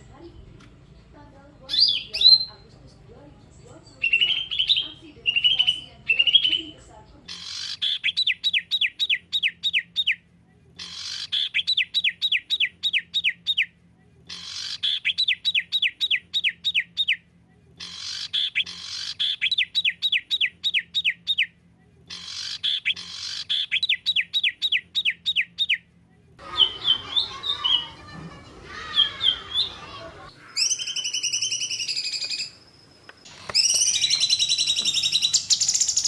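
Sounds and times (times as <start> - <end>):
songbird whistling rapid notes: 33.4 - 36.0.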